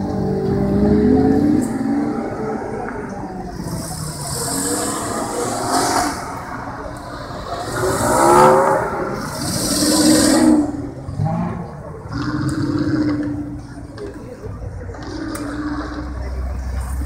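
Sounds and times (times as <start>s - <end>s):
cars driving past revving: 0.0s - 17.0s.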